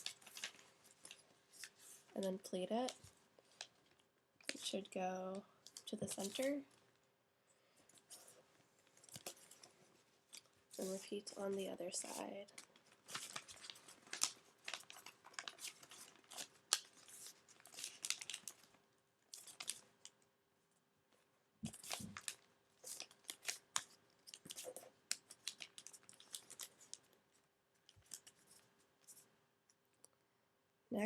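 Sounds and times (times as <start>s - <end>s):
paper being folded and creased: 0.0s - 2.2s, 5.6s - 6.6s, 8.0s - 20.2s, 21.6s - 27.2s, 27.8s - 29.2s.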